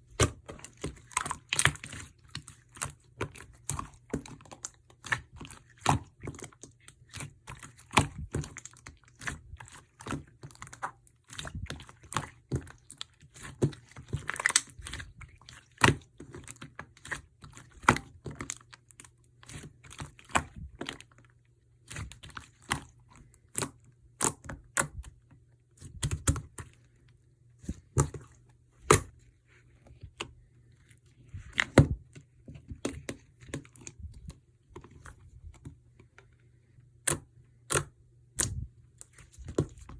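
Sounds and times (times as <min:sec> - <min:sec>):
slime squished by hand: 0:00.0 - 0:21.1.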